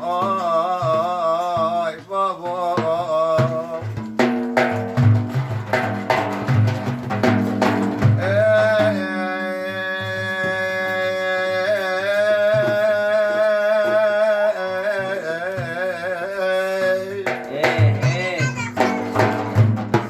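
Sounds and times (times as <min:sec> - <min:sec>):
man singing long ornamented notes: 0:00.0 - 0:04.0, 0:08.2 - 0:18.9
drum beating: 0:00.0 - 0:20.0.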